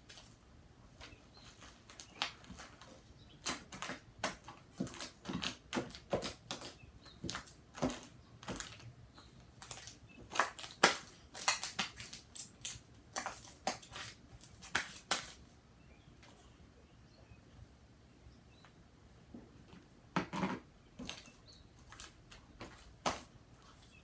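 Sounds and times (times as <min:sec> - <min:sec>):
slime squelching and popping: 0:09.6 - 0:14.1.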